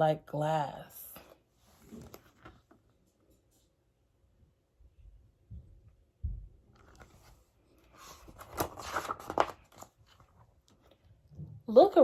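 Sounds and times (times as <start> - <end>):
page rustling and scraping: 1.2 - 3.6, 6.8 - 11.0.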